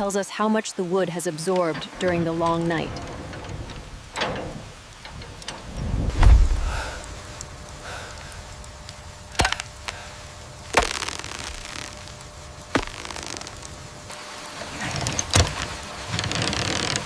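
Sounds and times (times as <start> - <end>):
heavy low thud: 2.4 - 7.4.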